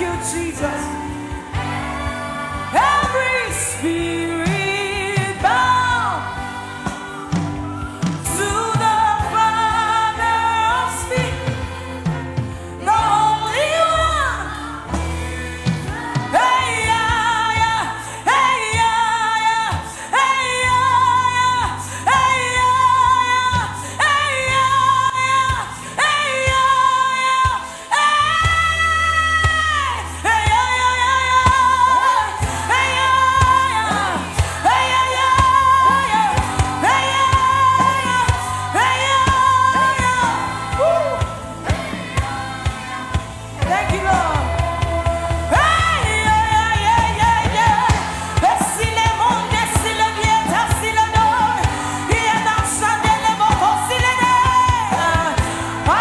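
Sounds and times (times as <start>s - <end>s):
instrumental accompaniment with bass: 0.0s - 56.0s
person singing gospel: 0.0s - 56.0s.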